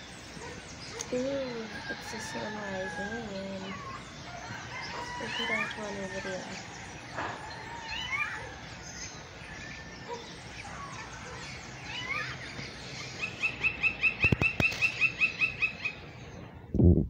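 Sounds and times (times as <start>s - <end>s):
birds chirping: 0.0s - 16.7s
sharp clicks: 14.2s - 15.0s.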